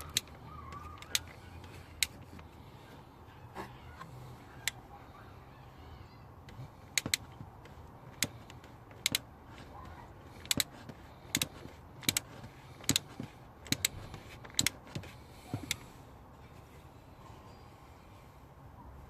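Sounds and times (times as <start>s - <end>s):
socket ratchet clicking: 0.0s - 2.3s, 6.9s - 9.3s, 10.4s - 15.1s.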